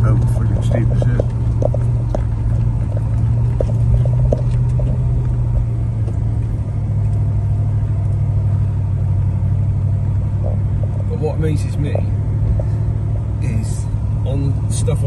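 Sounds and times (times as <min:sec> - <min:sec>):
knocks and rattles: 0:00.0 - 0:06.5
vehicle engine low drone: 0:00.0 - 0:15.0.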